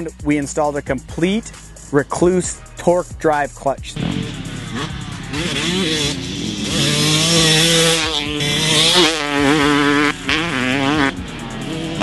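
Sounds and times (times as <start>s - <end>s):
dirt bike engine revving: 4.0s - 12.0s.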